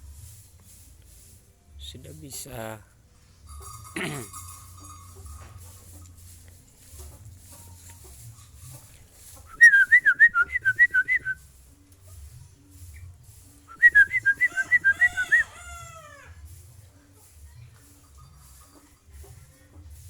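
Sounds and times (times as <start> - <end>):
rapid high whistled notes: 9.4 - 11.6, 13.7 - 15.5.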